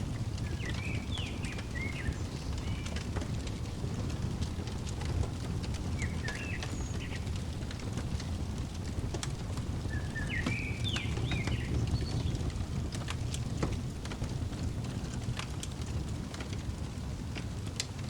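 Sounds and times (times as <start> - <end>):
wood fire crackling: 0.0 - 18.0
songbird chirping: 0.3 - 13.7.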